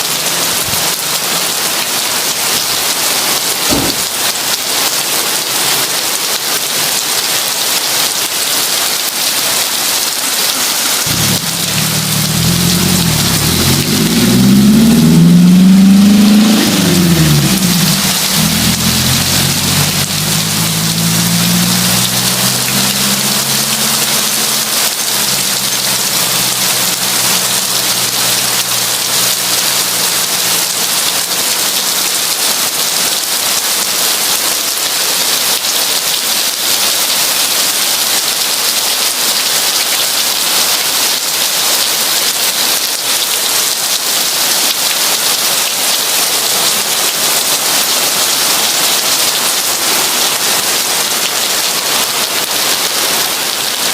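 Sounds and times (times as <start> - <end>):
heavy rain falling: 0.0 - 53.9
low rumble: 11.1 - 29.2.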